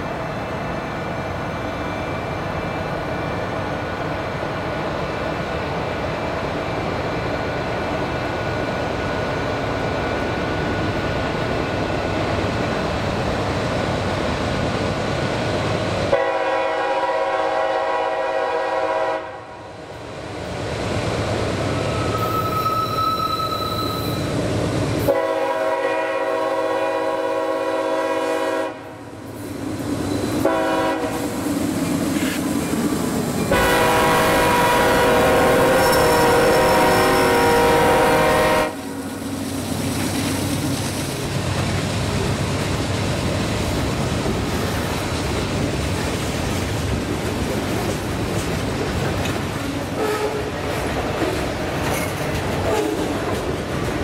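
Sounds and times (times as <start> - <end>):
diesel locomotives rumbling: 0.0 - 54.0
locomotive air horn blasts: 16.1 - 19.6, 25.0 - 29.0, 30.4 - 31.3, 33.5 - 39.0, 50.0 - 50.5.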